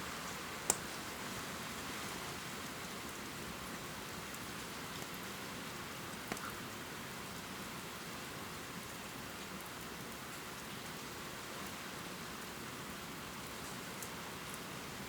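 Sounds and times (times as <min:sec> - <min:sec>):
faint drip ticks: 0:04.2 - 0:05.3, 0:06.1 - 0:06.6, 0:13.4 - 0:14.7.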